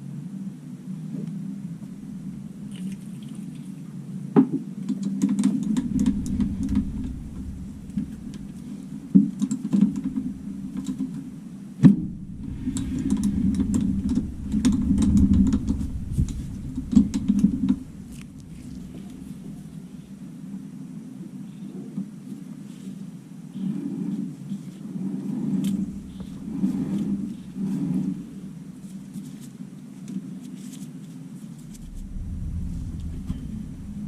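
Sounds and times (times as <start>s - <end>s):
low machine hum: 0.0s - 3.7s, 5.6s - 20.8s, 25.6s - 29.2s, 31.6s - 34.0s.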